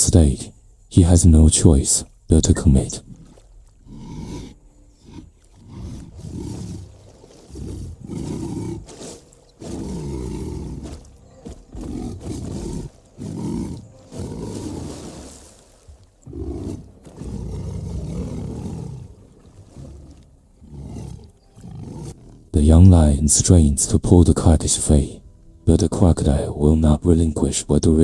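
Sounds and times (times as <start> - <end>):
lion growling and roaring: 3.0 - 22.6.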